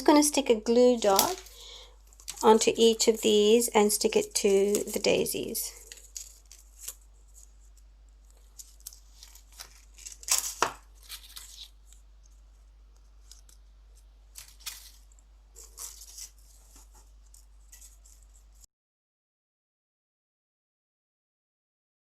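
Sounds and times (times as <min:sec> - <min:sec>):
glue dots peeling and rustling: 0:01.1 - 0:03.3, 0:05.8 - 0:18.7.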